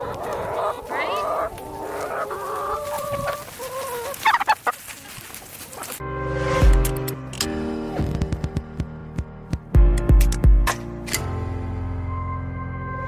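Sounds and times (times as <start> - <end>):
hens clucking: 0.0 - 6.0.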